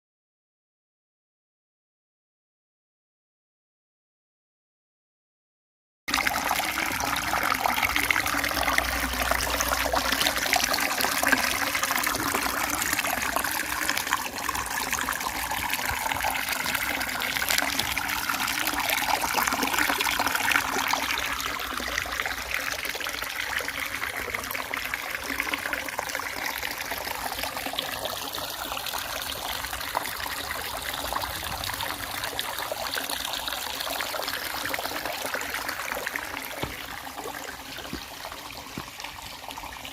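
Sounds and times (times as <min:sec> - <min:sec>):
stream trickling and gurgling: 0:06.1 - 0:39.9.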